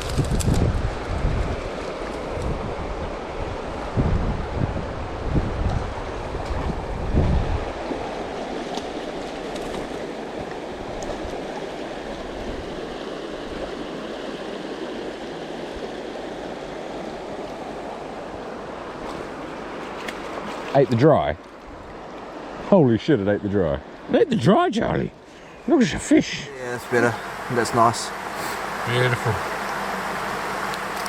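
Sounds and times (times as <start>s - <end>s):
wind buffeting microphone: 0.0s - 7.9s
stream flowing: 0.8s - 31.0s.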